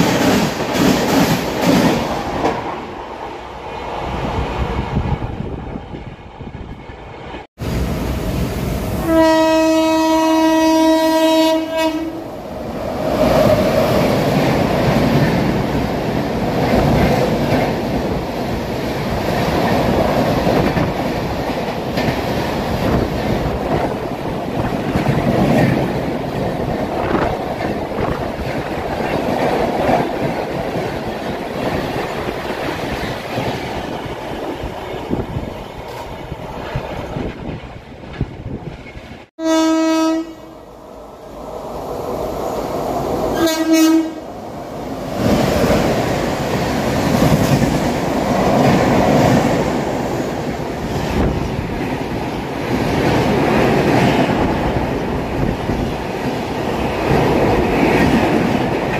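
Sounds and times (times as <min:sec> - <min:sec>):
train rumbling past: 0:00.0 - 0:58.9
train horn: 0:09.0 - 0:12.4, 0:39.4 - 0:40.7, 0:43.3 - 0:44.3.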